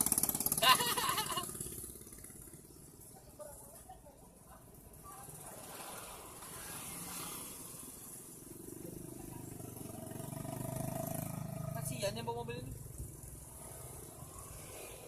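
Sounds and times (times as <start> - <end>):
vehicle engine labouring uphill: 0.0 - 3.8.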